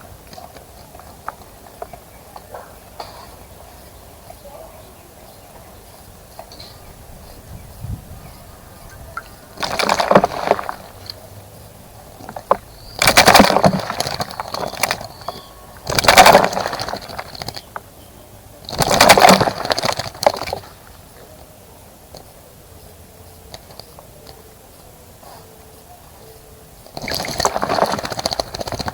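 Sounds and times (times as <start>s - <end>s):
bird splashing in water: 8.6s - 17.7s, 18.6s - 21.0s, 26.9s - 28.9s.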